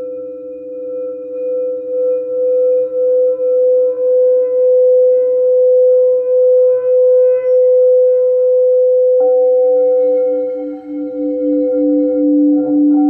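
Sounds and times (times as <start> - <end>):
singing bowl ringing: 9.3 - 13.0.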